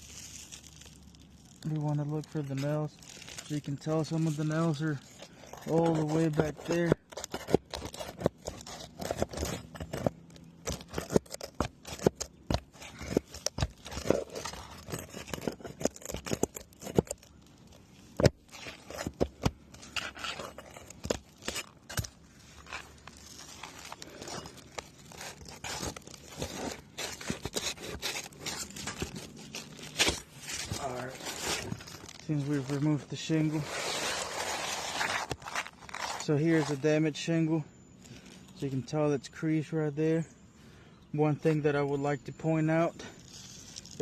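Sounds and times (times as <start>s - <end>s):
metal tool scraping shingles: 1.7s - 17.3s, 18.0s - 37.0s.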